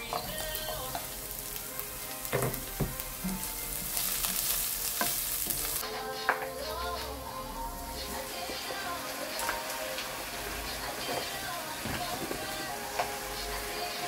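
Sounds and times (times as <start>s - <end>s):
onion sizzling in oil: 0.0s - 14.0s
spoon stirring: 0.0s - 14.0s
spoon knocking against pan: 2.3s - 3.5s.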